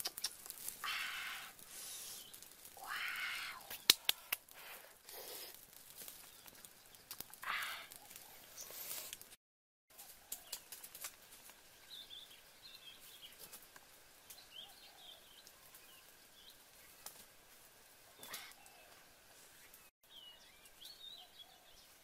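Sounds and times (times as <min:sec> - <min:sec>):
small birds chirping: 0:00.0 - 0:04.4, 0:06.0 - 0:09.2, 0:11.5 - 0:17.4, 0:18.0 - 0:22.0.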